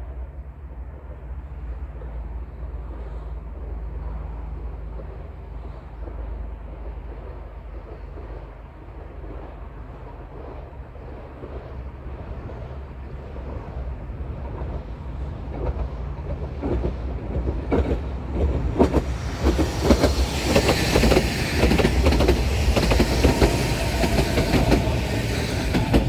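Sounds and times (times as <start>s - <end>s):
electric train passing: 0.0s - 26.0s
wheels clicking over rail joints: 12.4s - 26.0s
loud rushing noise: 18.6s - 26.0s.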